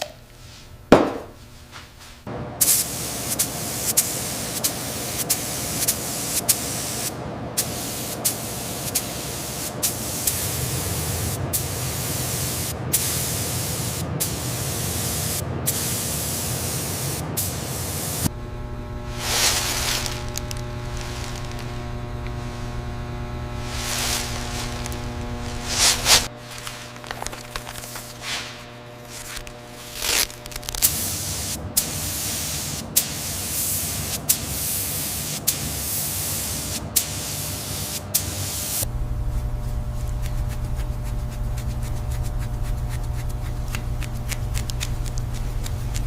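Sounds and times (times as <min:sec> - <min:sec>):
steady low hum: 0:00.0 - 0:35.0, 0:38.8 - 0:46.0
compressed air spraying hiss: 0:02.6 - 0:18.3, 0:19.1 - 0:30.0, 0:30.8 - 0:38.9.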